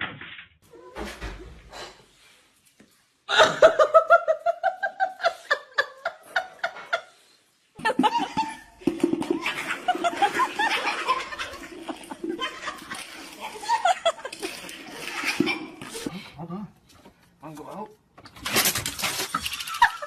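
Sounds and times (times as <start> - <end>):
person laughing: 7.8 - 8.8.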